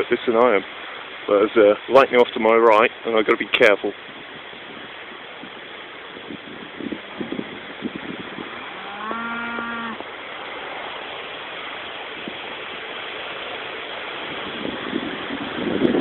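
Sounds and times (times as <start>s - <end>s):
strong wind on microphone: 4.0s - 10.8s, 14.0s - 16.0s.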